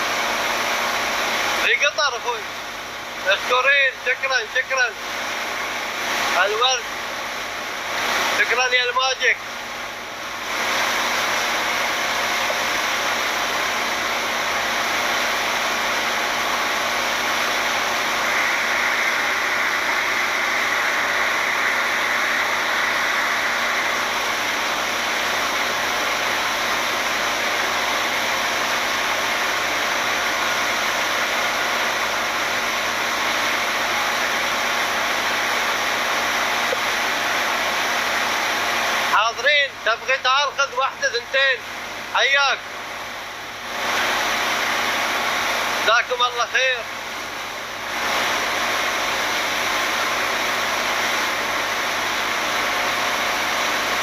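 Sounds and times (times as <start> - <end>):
steady rushing noise: 10.3 - 39.4.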